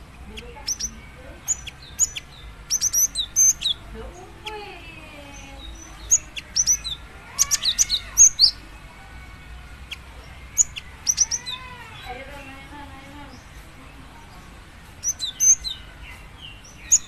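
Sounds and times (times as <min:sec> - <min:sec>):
bird high sharp chirps: 0:00.2 - 0:08.7, 0:09.8 - 0:12.4, 0:15.0 - 0:17.0.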